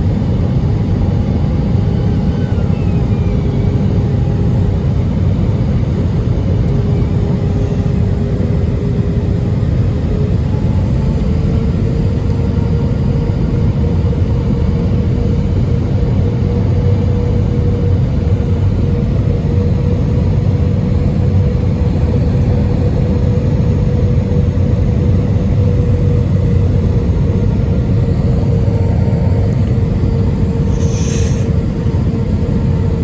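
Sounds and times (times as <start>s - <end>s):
airplane cabin engine rumble: 0.0s - 33.0s
short hiss: 30.7s - 31.5s.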